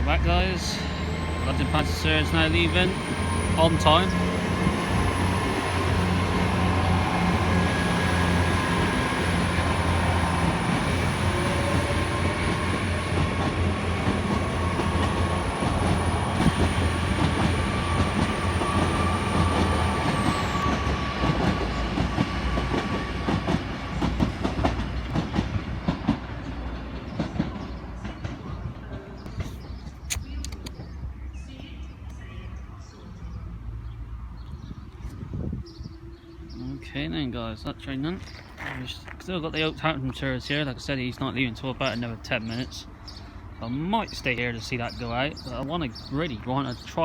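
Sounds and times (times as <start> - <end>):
train engine drone: 0.0 - 30.4.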